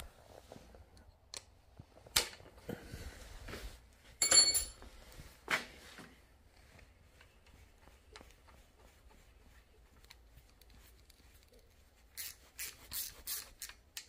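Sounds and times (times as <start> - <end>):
high metallic ring: 4.2 - 4.8
metal nuts and washers clinking: 4.2 - 4.8.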